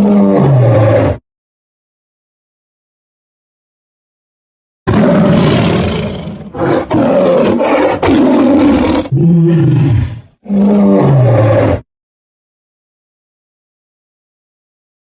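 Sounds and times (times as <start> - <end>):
tiger roaring: 0.0 - 1.2, 4.9 - 11.8.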